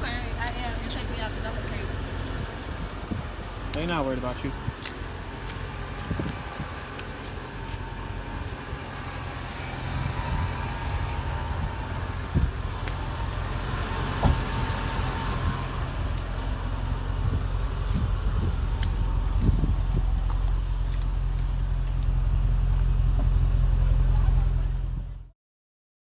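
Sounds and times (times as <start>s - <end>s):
car engine hum from inside: 0.0s - 25.3s.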